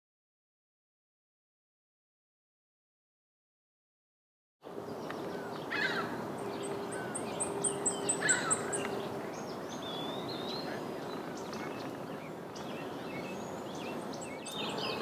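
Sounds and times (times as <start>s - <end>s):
outdoor background noise: 4.6s - 15.0s
wild birds chirping: 4.7s - 15.0s.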